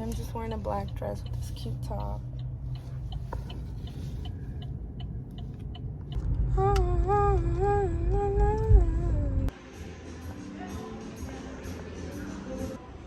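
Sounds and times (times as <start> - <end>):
low steady rumble: 0.0 - 9.6
person humming: 6.5 - 9.5.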